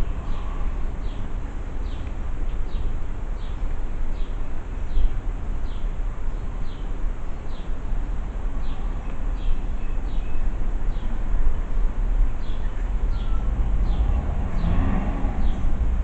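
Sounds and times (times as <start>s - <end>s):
steady low rumble: 0.0s - 6.4s, 10.5s - 16.0s
birds chirping: 12.4s - 15.7s.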